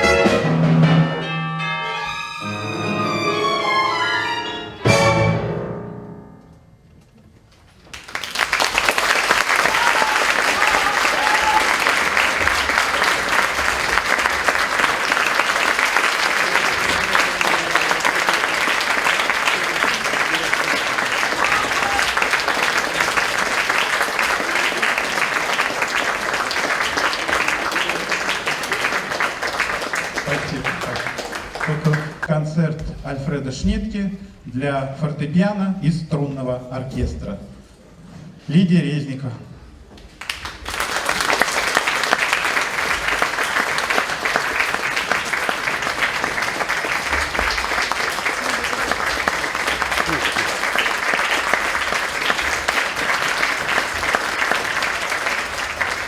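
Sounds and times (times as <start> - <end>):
audience applauding: 7.8 - 32.3, 40.1 - 56.0.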